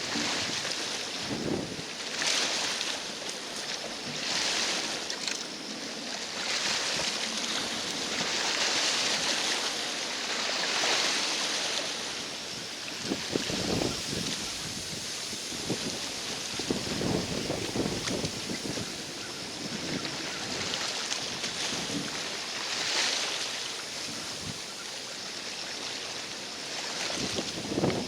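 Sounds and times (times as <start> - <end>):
wind buffeting microphone: 0.0 - 1.9, 13.0 - 22.2, 27.1 - 28.0
lake water washing against shore: 0.0 - 28.0.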